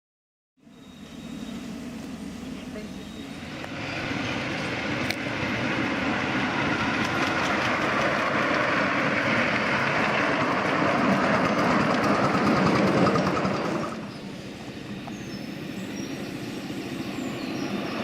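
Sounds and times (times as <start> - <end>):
miniature train running on track: 2.7 - 15.3.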